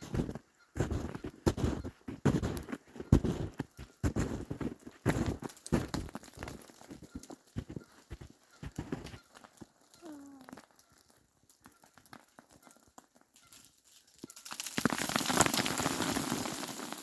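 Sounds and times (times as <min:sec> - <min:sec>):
ice crackling onto snow: 0:00.0 - 0:17.0.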